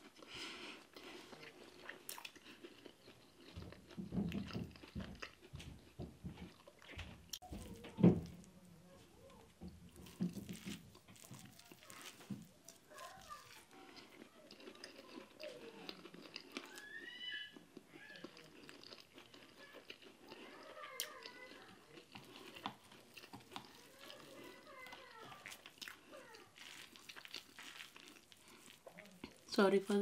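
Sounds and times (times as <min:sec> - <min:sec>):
person chewing: 0:00.0 - 0:08.5, 0:09.6 - 0:30.0
faint background voices: 0:07.4 - 0:27.4.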